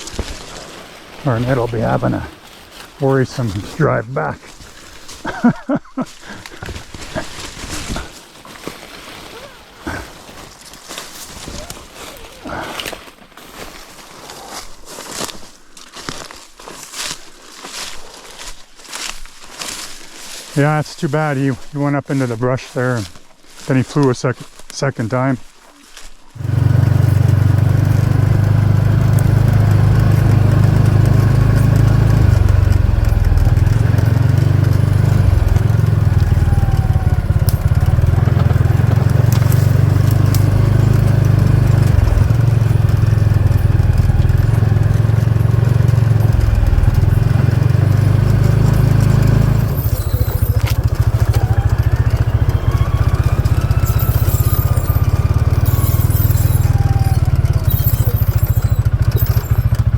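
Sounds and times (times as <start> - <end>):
off-road buggy engine droning: 0.0 - 4.4, 26.4 - 59.9.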